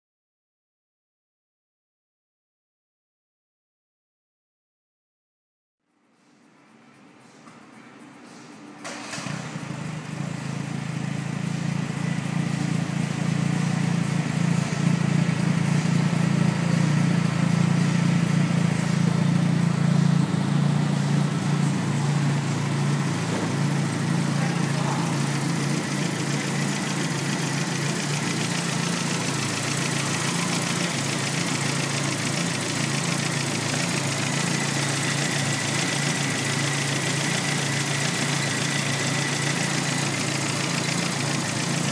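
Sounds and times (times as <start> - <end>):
car engine starting and idling: 8.6 - 41.9.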